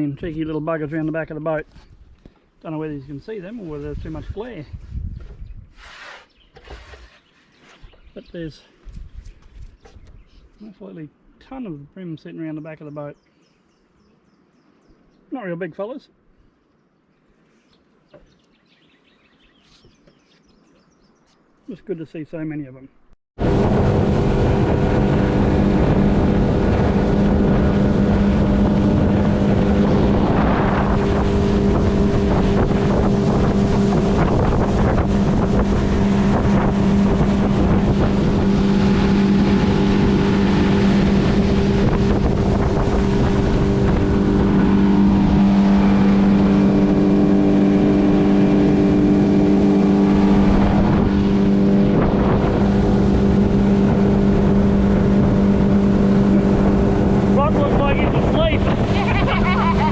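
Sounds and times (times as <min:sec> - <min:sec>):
hull rushing through water: 0:23.4 - 0:59.9
outboard motor running: 0:23.4 - 0:59.9.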